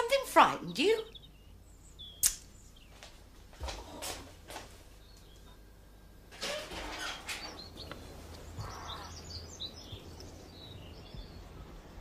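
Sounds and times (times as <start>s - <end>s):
small birds chirping: 0.5s - 4.0s, 4.9s - 5.6s, 7.0s - 12.0s.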